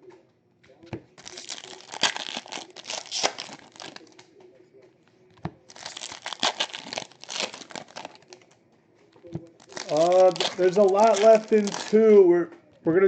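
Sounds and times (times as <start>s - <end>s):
card wrappers crinkling and tearing: 1.2s - 4.3s, 5.6s - 8.5s, 9.1s - 12.3s.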